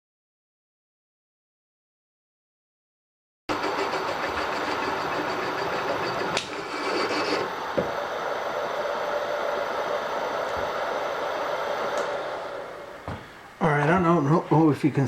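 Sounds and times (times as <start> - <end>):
milling machine whirring: 3.5 - 13.4.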